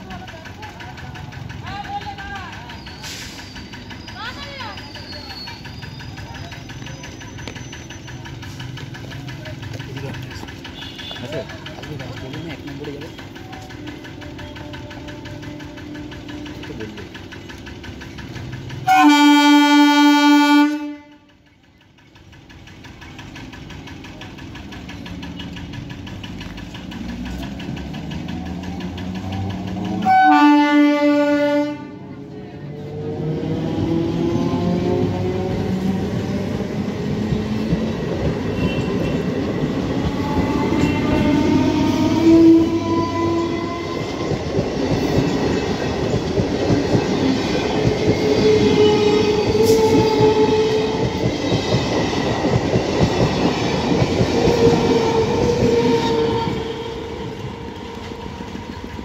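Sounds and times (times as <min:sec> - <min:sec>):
wheels clattering over rails: 0:00.0 - 0:59.0
train whine rising in pitch: 0:18.8 - 0:21.2, 0:26.4 - 0:59.0
train horn blasts: 0:18.8 - 0:21.3, 0:30.0 - 0:32.1, 0:38.5 - 0:39.3, 0:55.0 - 0:57.4.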